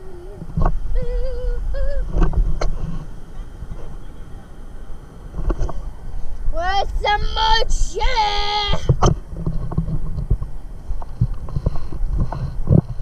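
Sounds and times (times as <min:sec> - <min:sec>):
wind buffeting the microphone: 0:00.0 - 0:13.0
high voice singing wordless note: 0:01.0 - 0:02.2, 0:06.6 - 0:09.0.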